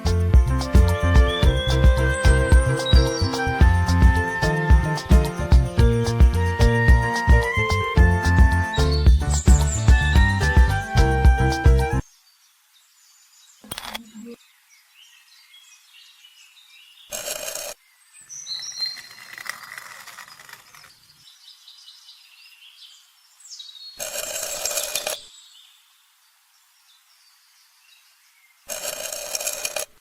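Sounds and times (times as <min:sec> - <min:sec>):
birds chirping faintly: 0:11.8 - 0:28.8
short bursts of noise: 0:17.1 - 0:17.8, 0:24.0 - 0:25.2, 0:28.7 - 0:30.0.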